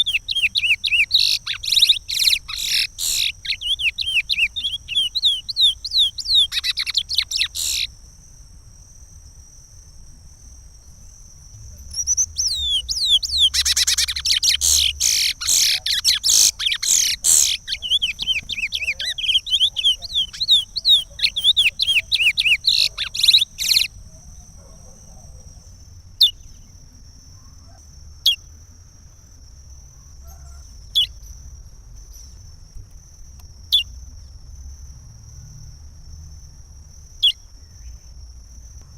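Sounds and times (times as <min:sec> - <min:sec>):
finch singing whistled notes: 0:00.0 - 0:07.9, 0:11.9 - 0:24.0.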